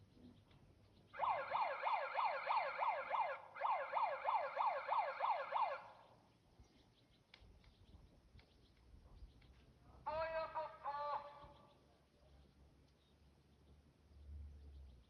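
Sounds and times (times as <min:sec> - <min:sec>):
electronic siren yelping: 0:01.2 - 0:06.0.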